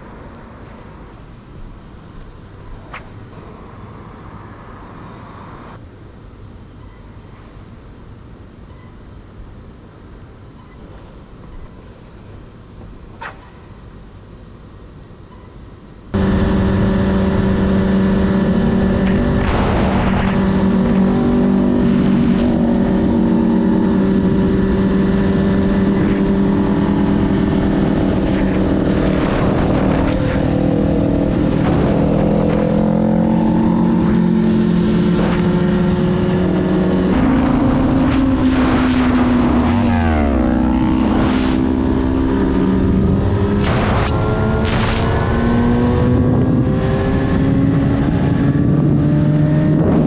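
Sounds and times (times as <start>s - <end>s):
motorcycle engine running: 16.2s - 50.0s.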